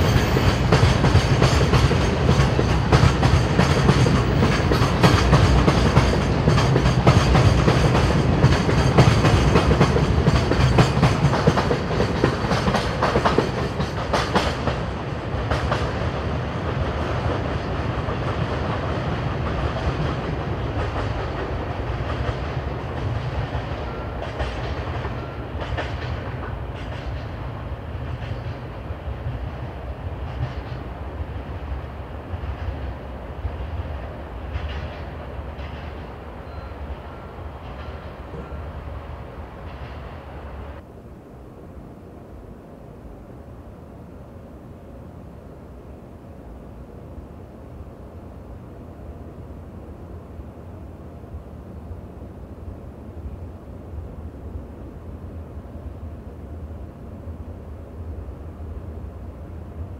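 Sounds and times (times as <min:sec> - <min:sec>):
freight wagons clickety-clack on rails: 0:00.0 - 0:40.8.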